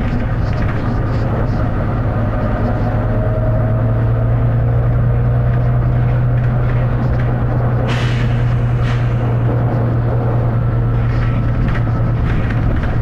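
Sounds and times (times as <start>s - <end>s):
bus diesel engine droning: 0.0s - 13.0s
air hiss burst: 7.9s - 9.2s.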